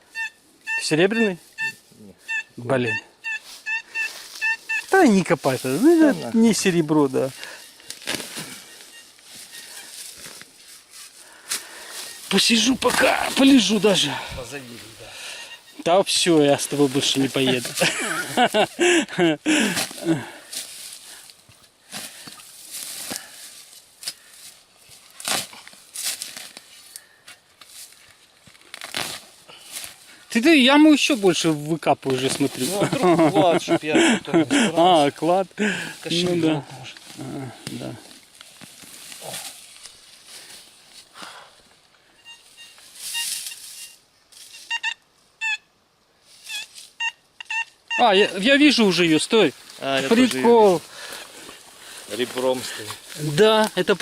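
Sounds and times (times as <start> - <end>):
metal detector beeps: 0.1 - 5.3, 8.4 - 9.9, 12.0 - 12.8, 15.2 - 16.2, 42.1 - 45.7, 46.5 - 48.4.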